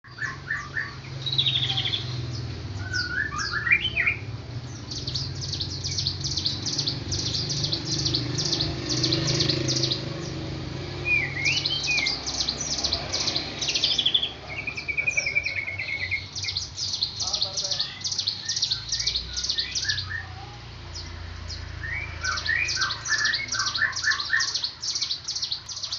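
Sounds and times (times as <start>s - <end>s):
songbirds chirping: 0.0s - 25.9s
rising whistled bird phrases: 0.1s - 2.2s, 2.8s - 10.4s, 11.0s - 25.9s.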